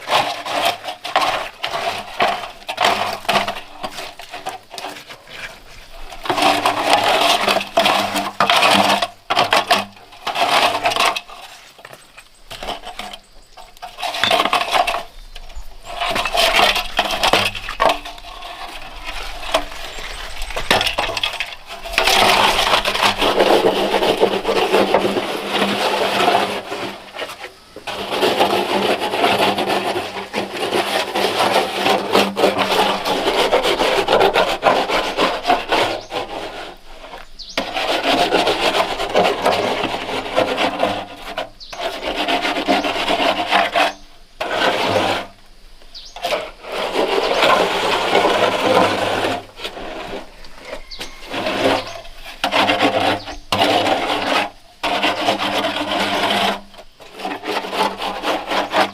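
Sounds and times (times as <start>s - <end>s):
tool scraping coarse surface: 0.0s - 58.9s.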